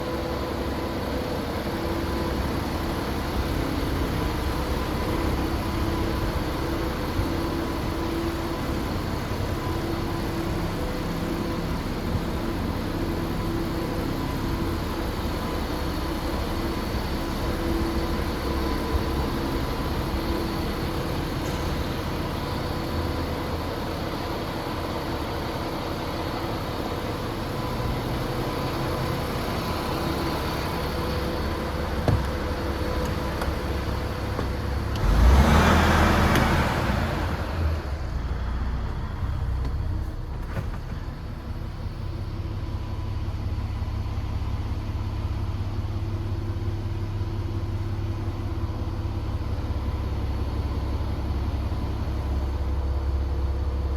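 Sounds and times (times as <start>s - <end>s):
diesel truck engine idling: 0.0s - 53.9s
click: 33.0s - 33.6s.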